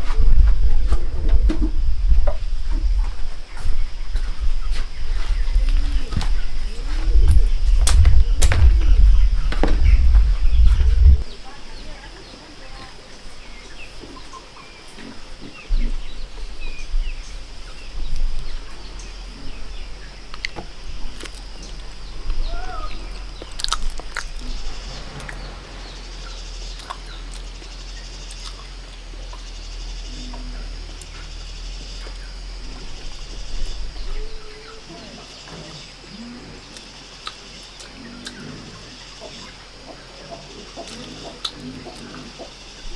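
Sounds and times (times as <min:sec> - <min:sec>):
low rumble: 0:00.0 - 0:11.4, 0:15.7 - 0:34.9
small birds chirping: 0:00.0 - 0:42.9
high insect drone: 0:00.1 - 0:42.9.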